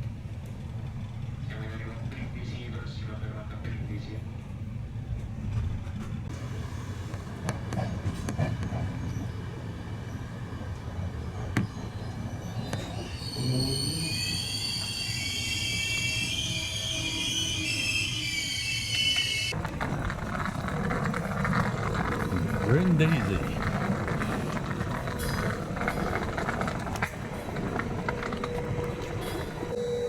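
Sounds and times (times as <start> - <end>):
train rumbling: 0.0 - 30.0
train clicks: 5.2 - 15.0, 18.8 - 29.8
high-pitched wheel squeal: 11.6 - 19.6, 21.5 - 30.0.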